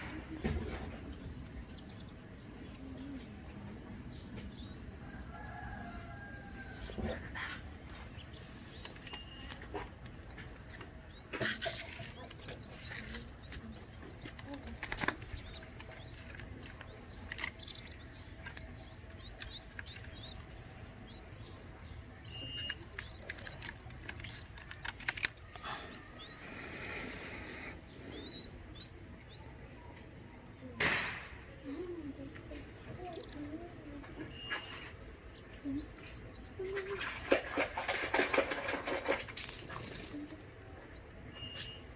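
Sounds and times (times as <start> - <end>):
high rising bird chirps: 12.2 - 23.6, 25.5 - 26.7, 27.4 - 29.8, 34.3 - 36.6
dove wings flapping: 36.6 - 40.2.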